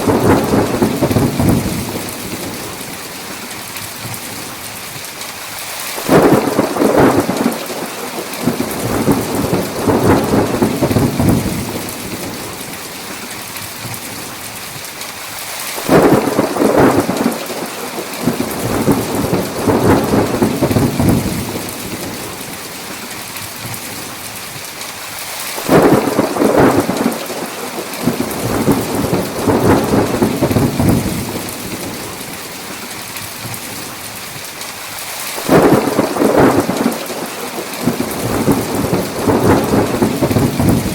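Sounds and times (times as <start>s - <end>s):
thunder rolling: 0.0s - 3.0s, 6.0s - 12.8s, 15.8s - 22.6s, 25.6s - 32.1s, 35.4s - 40.9s
heavy rain: 0.0s - 40.9s.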